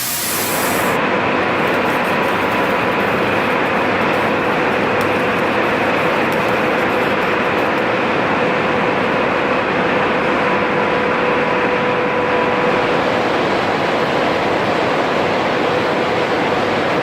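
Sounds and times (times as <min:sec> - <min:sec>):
loud industrial noise: 0:00.0 - 0:17.0
mid-pitched hum: 0:00.0 - 0:17.0.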